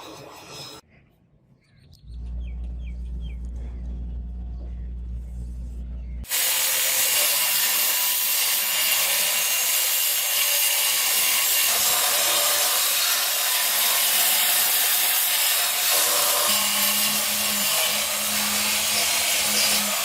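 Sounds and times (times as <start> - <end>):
power tool grinding steel: 6.2 - 20.0.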